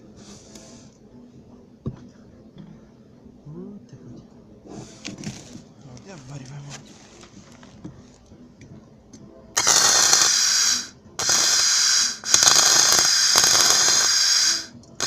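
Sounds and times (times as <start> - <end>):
arc welding crackling hiss: 9.6 - 14.7.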